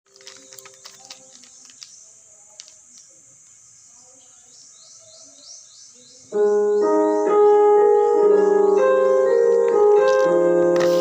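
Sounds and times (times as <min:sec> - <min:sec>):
faint clicks and taps: 0:00.1 - 0:03.6.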